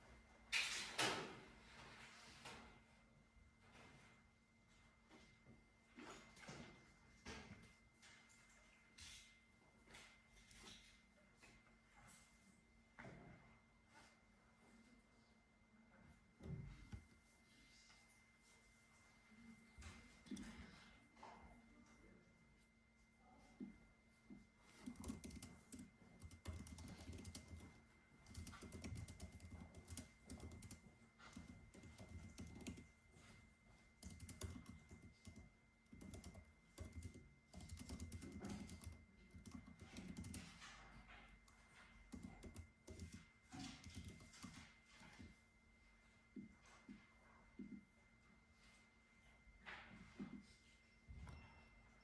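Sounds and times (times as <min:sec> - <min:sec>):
typing on computer keyboard: 0:24.7 - 0:33.3, 0:34.0 - 0:45.3.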